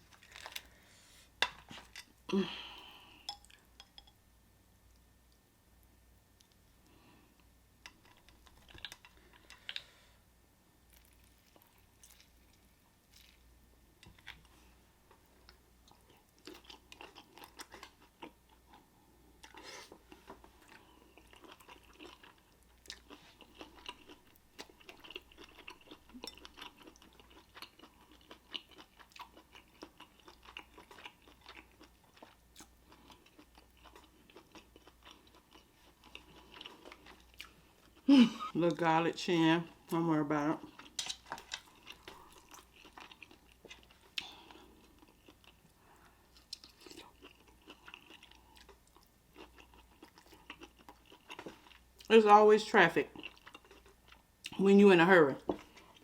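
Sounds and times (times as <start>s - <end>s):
chewing crab meat: 6.4s - 10.0s, 10.9s - 38.1s, 39.8s - 52.1s, 53.0s - 54.6s.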